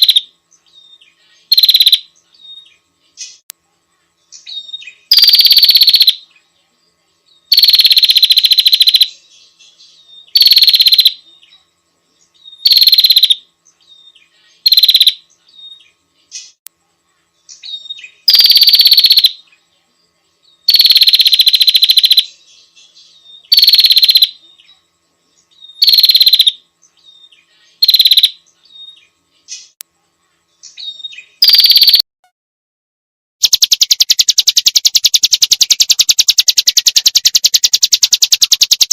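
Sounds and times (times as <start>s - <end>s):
fast pulsed bird call: 0.0s - 0.3s, 1.5s - 2.6s, 4.4s - 6.2s, 7.5s - 9.1s, 10.2s - 11.2s, 12.5s - 13.4s, 14.6s - 15.8s, 17.6s - 19.4s, 20.7s - 22.3s, 23.3s - 24.4s, 25.6s - 26.6s, 27.8s - 29.0s, 30.8s - 32.0s, 33.4s - 38.9s
bird harsh rattling call: 33.4s - 38.9s.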